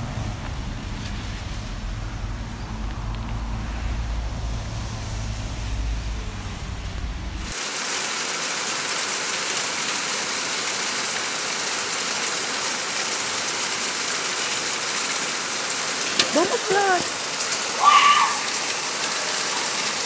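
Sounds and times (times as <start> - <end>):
low rumble: 0.0 - 7.5
heavy rain pouring: 3.7 - 20.0.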